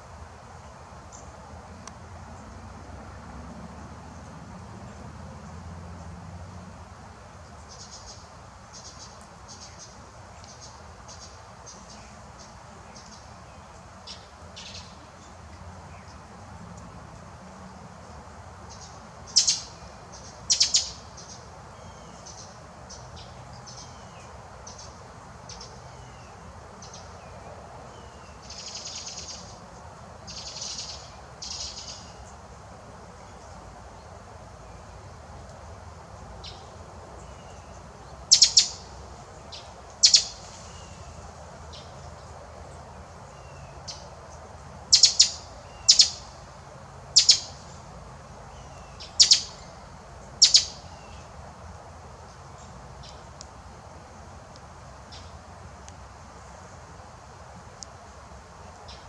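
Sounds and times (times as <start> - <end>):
birds chip notes: 18.7 - 25.8, 37.3 - 38.9, 44.9 - 46.4, 47.2 - 47.8, 48.7 - 49.8, 50.4 - 51.3
longer fuller bird calls: 18.7 - 29.6, 30.3 - 32.4, 36.4 - 42.2, 44.9 - 46.4, 47.2 - 47.8, 48.5 - 51.3.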